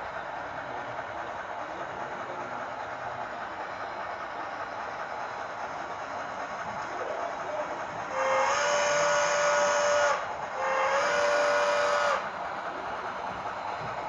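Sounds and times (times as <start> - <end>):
model train running: 0.0 - 14.0
steam whistle blasts: 8.1 - 12.3.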